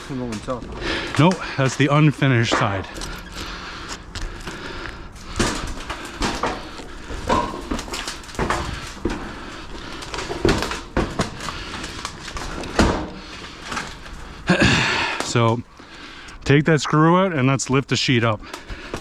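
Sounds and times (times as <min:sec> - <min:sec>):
steel roofing panels clattering: 0:04.5 - 0:14.4.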